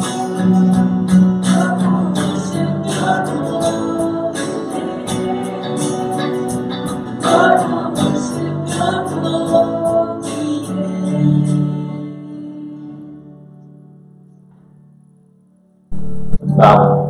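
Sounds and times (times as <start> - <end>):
instrumental accompaniment: 0.0 - 12.3
voices singing: 1.4 - 11.8.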